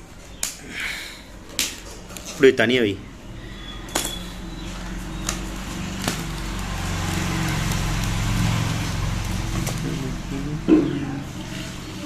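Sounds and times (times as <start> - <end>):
vehicle engine hum passing by: 3.2 - 12.0.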